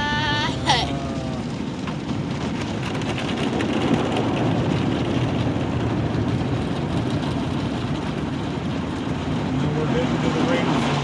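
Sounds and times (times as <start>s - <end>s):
falling vocal sound: 0.0s - 1.6s.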